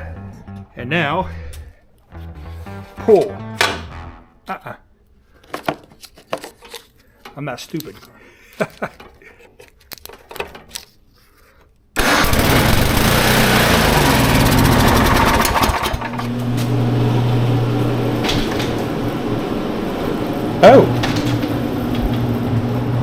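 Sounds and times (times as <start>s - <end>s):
snow blower engine running: 12.0s - 17.8s.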